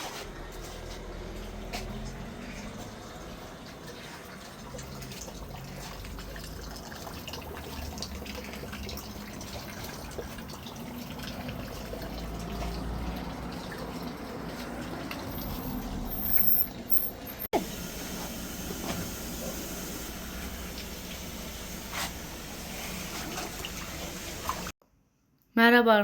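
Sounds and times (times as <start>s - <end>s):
water trickling from fountain spout: 1.1s - 16.4s.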